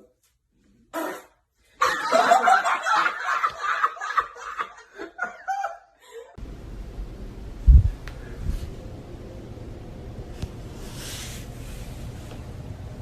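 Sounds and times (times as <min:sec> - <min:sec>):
low steady rumble: 0:06.4 - 0:13.0.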